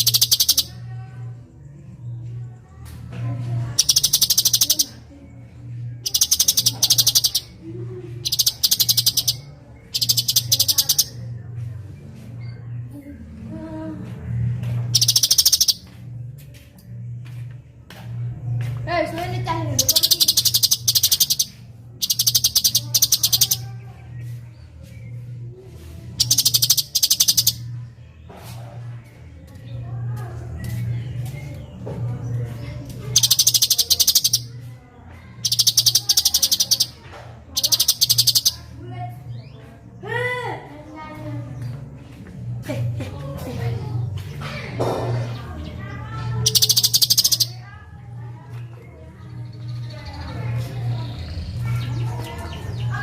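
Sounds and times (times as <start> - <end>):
bird singing high trills: 0.0 - 0.8, 3.8 - 5.0, 6.0 - 7.6, 8.2 - 11.2, 14.9 - 15.8, 19.8 - 23.8, 26.2 - 27.6, 33.2 - 34.5, 35.4 - 37.0, 37.6 - 38.6, 46.4 - 47.6.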